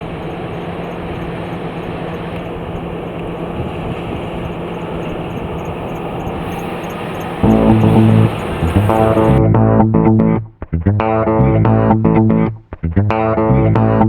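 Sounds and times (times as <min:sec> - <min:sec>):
car engine running: 0:00.0 - 0:09.7.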